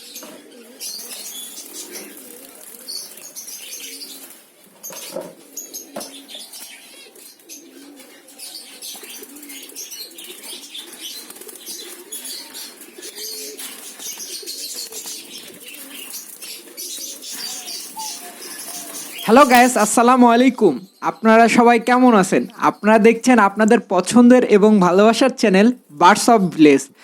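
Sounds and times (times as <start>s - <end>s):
doves fluttering wings: 0.0s - 20.1s
doves cooing: 0.0s - 21.6s.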